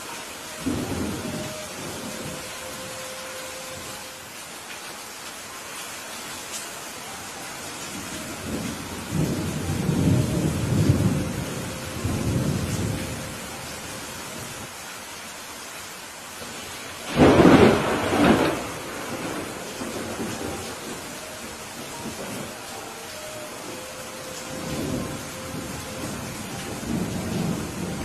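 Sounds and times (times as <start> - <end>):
steady rain hiss: 0.0 - 28.0
low rolling thunder rumble: 0.6 - 3.0, 8.1 - 14.5, 17.1 - 22.7, 23.6 - 28.0
sharp thunderclap: 17.1 - 20.3.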